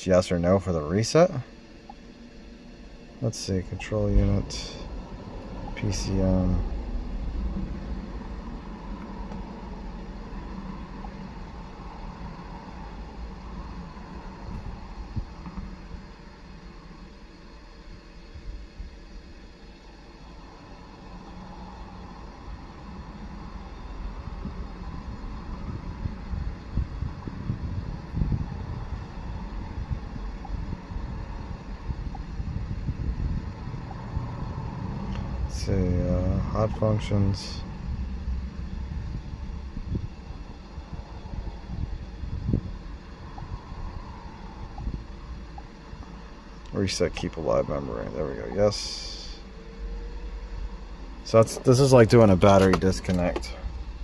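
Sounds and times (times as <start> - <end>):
car engine idling: 0.0 - 54.0
wind buffeting microphone: 3.6 - 16.2, 22.0 - 48.8.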